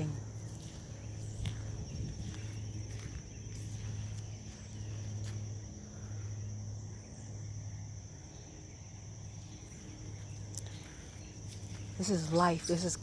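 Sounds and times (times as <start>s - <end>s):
crickets chirping: 0.0s - 13.0s
low steady hum: 0.0s - 13.0s.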